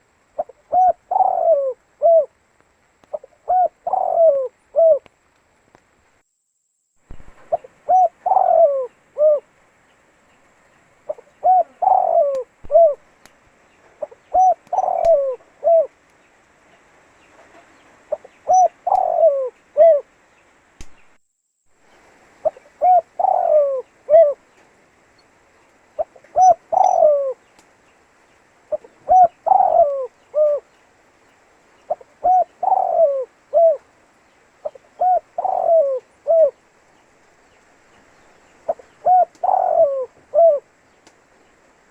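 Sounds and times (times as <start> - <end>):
dove cooing: 0.0 - 2.4, 3.1 - 5.1, 7.1 - 9.6, 11.0 - 13.2, 13.8 - 16.0, 16.6 - 20.2, 22.0 - 27.6, 28.4 - 30.8, 31.7 - 37.0, 37.8 - 41.0.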